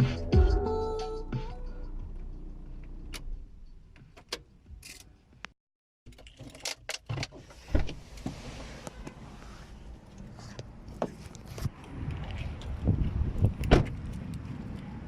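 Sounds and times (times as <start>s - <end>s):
low traffic rumble: 7.7s - 15.0s.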